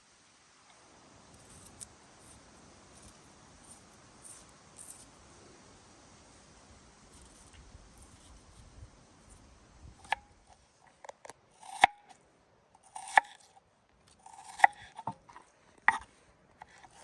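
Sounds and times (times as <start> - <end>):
knife slicing on cutting board: 12.9 - 13.4, 14.2 - 15.2.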